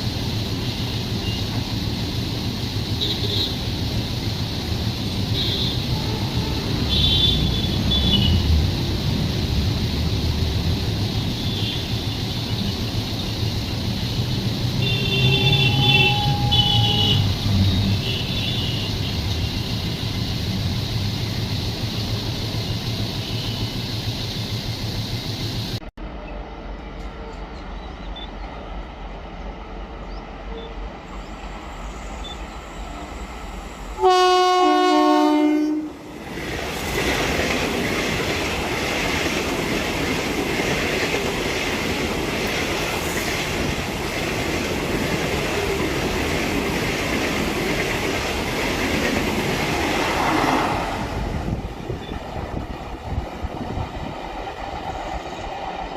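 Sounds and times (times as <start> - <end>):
train horn blast: 5.3 - 8.5, 14.8 - 19.1, 34.0 - 36.1
train wheels clattering on rails: 36.2 - 55.9.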